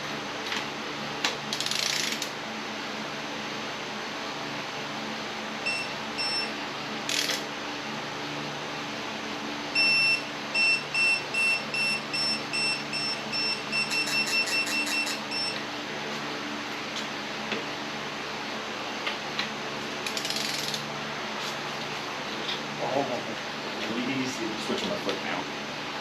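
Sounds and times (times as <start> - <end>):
ratchet clicks: 1.5 - 2.3, 7.1 - 7.4, 20.0 - 20.8
torque wrench beeping: 9.8 - 15.6.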